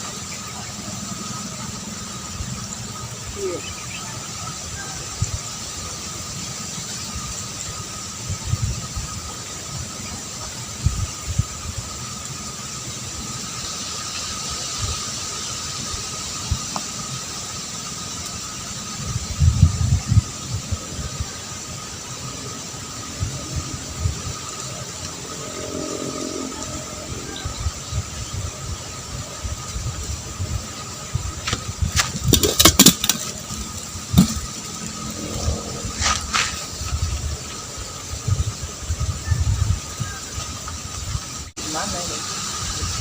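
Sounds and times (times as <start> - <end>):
high-pitched drone: 18.7 - 31.4, 33.4 - 40.1.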